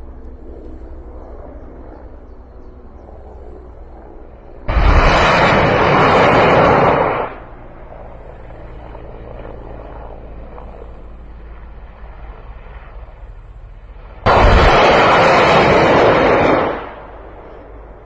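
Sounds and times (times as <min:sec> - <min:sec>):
low steady rumbling: 0:00.0 - 0:18.0
rockets launching roar: 0:04.7 - 0:07.6, 0:14.1 - 0:18.0.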